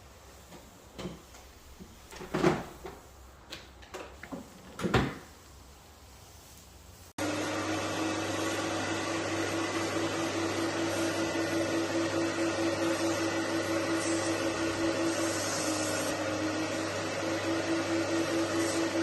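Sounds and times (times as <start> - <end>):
cleaning machine vacuum motor humming: 7.2 - 19.0.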